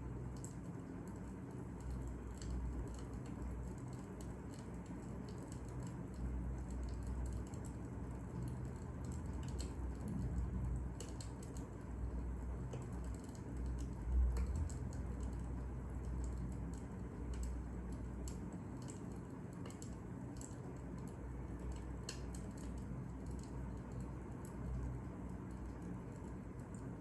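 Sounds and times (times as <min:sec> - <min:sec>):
low steady rumble: 0:00.0 - 0:27.0
fire crackling: 0:00.1 - 0:27.0.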